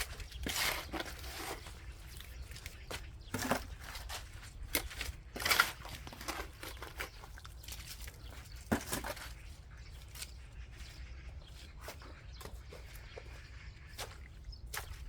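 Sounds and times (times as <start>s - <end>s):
shovel digging into soil: 0.0s - 10.4s.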